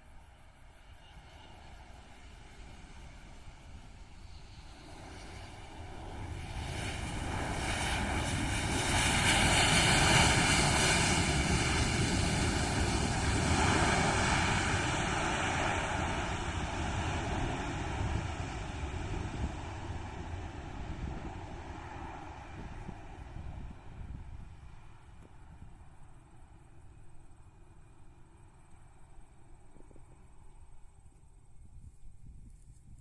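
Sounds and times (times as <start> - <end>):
jet airliner engines roaring: 1.0 - 26.4.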